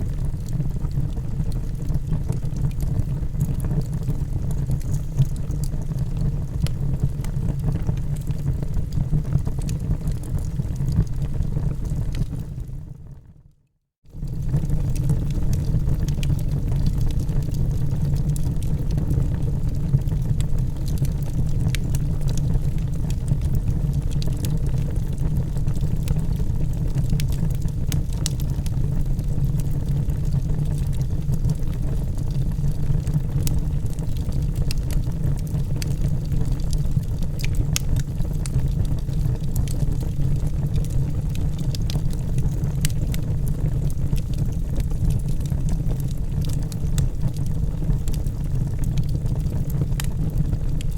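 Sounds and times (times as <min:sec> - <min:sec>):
fire rumbling in fireplace: 0:00.0 - 0:13.4, 0:14.1 - 0:50.9
logs crackling and popping: 0:00.1 - 0:12.7, 0:14.2 - 0:50.8.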